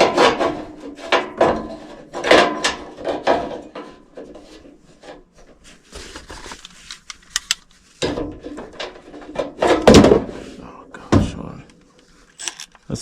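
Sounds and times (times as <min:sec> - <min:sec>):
metal parts clattering and scraping: 0:12.3 - 0:13.0.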